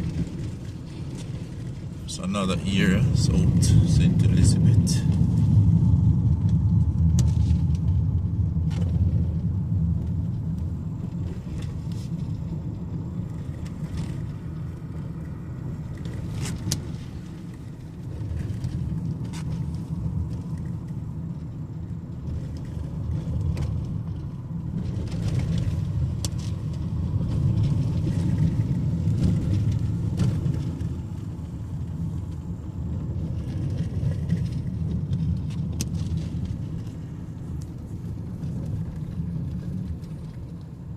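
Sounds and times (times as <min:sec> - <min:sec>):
car engine and tyres rumbling: 0:00.0 - 0:40.9.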